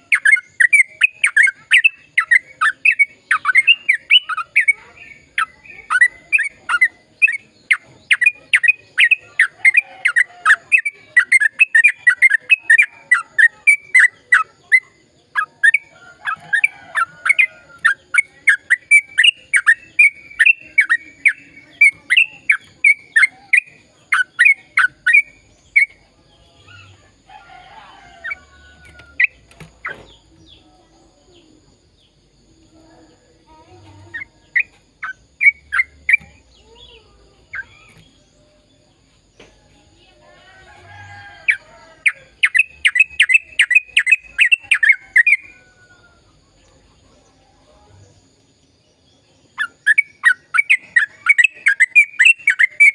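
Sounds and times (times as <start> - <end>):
bird singing sharp repeated notes: 0.0 - 27.0, 33.5 - 39.2, 41.5 - 45.6, 49.5 - 52.9.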